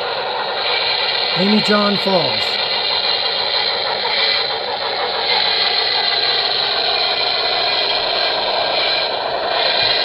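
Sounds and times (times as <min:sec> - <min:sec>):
model train running on track: 0:00.0 - 0:10.0.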